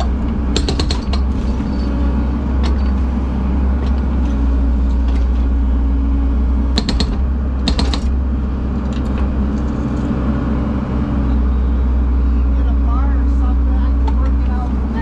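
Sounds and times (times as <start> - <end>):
metallic clanking and creaking: 0.0 - 5.6, 6.8 - 10.2
heavy machine engine running: 0.0 - 15.0.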